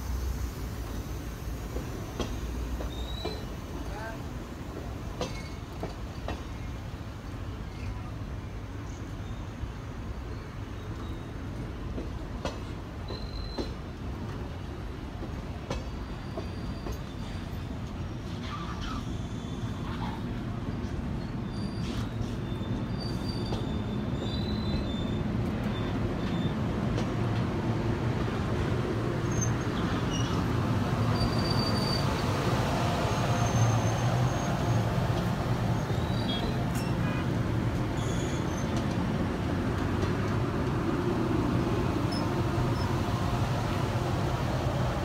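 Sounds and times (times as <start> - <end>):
train wheels rumbling on rail: 0.0 - 45.0
high-pitched wheel squeals: 31.1 - 32.1, 38.0 - 38.8.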